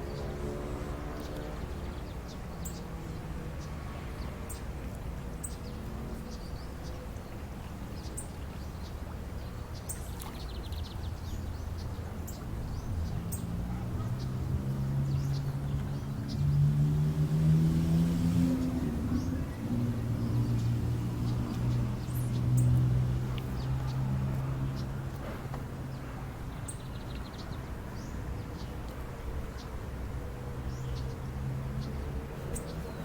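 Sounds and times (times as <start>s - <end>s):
vehicle engine: 12.6s - 26.2s.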